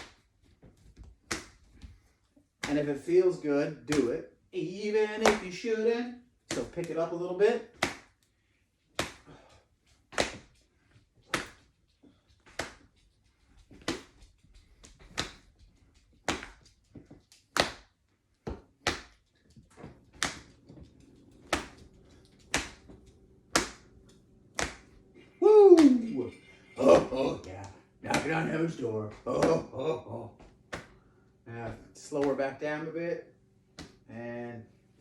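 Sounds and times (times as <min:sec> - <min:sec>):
open-hand slaps: 0:01.2 - 0:01.7, 0:02.6 - 0:02.9, 0:03.9 - 0:04.1, 0:05.2 - 0:05.6, 0:06.5 - 0:07.0, 0:07.7 - 0:08.2, 0:08.9 - 0:09.4, 0:10.1 - 0:10.6, 0:11.3 - 0:11.7, 0:12.4 - 0:12.9, 0:13.7 - 0:14.2, 0:14.9 - 0:15.5, 0:16.2 - 0:16.7, 0:17.5 - 0:17.9, 0:18.5 - 0:19.2, 0:20.1 - 0:20.6, 0:21.4 - 0:23.9, 0:24.5 - 0:25.0, 0:25.7 - 0:26.2, 0:27.5 - 0:28.4, 0:30.7 - 0:31.0, 0:32.1 - 0:32.4, 0:33.8 - 0:34.0.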